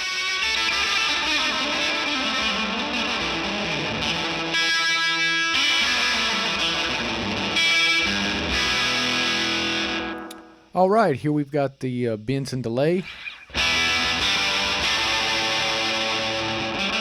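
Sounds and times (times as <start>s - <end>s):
electric guitar with delay echo: 0.0s - 10.6s, 13.0s - 17.0s.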